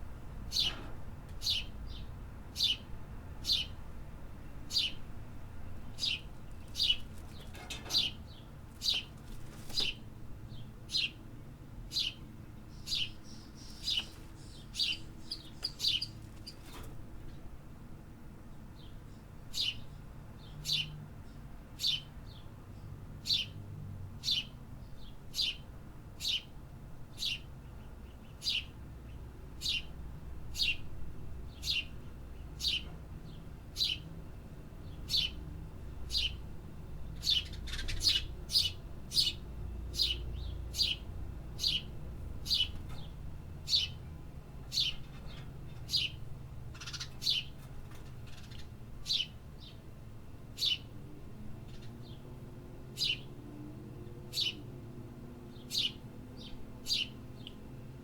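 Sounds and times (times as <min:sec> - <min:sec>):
songbird chirping: 0:11.9 - 0:16.8, 0:55.5 - 0:57.7.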